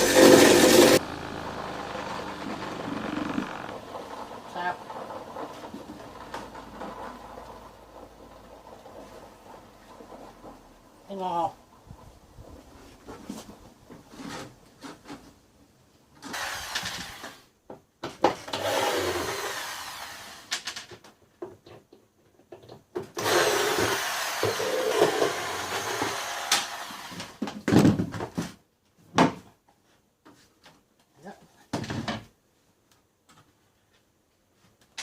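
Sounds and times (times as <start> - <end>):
grinder motor running: 0.0 - 6.8, 23.2 - 27.2.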